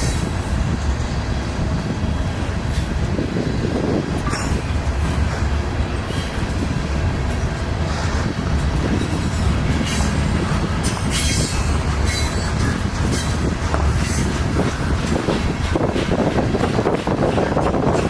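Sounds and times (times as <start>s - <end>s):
freight train wheels rumbling: 0.0s - 18.0s
train wheels screeching: 2.0s - 18.0s.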